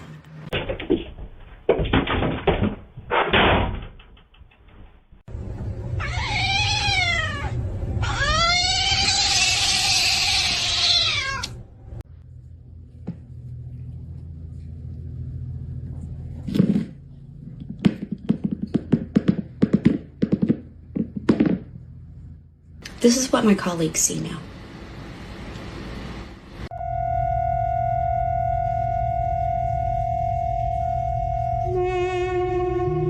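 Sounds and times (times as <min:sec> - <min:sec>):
cat meowing: 0:06.0 - 0:11.6.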